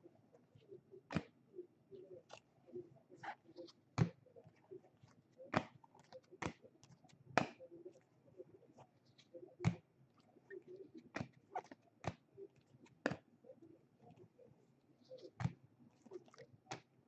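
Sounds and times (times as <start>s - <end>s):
trading cards tapping and clicking: 5.5s - 7.6s, 11.0s - 13.3s, 16.7s - 16.9s.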